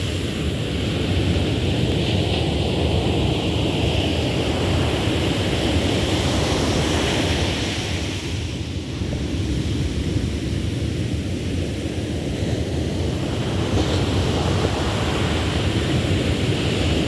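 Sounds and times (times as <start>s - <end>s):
ocean surf on a beach: 0.0s - 17.0s
wind rumbling on microphone: 0.0s - 17.0s.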